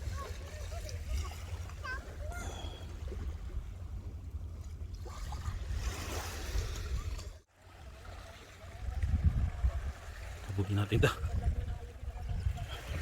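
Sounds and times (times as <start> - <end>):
surf washing on shore: 5.1 - 13.0
wind buffeting microphone: 8.7 - 13.0.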